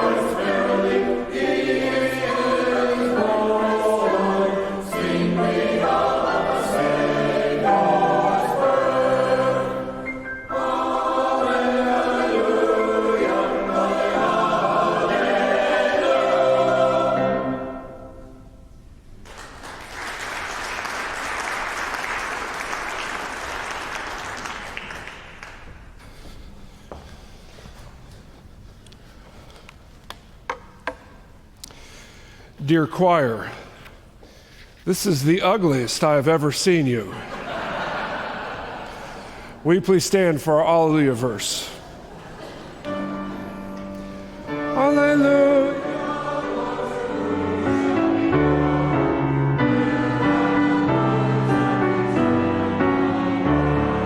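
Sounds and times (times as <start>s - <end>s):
church choir singing: 0.0s - 18.6s, 35.0s - 54.0s
congregation applauding: 19.2s - 25.9s.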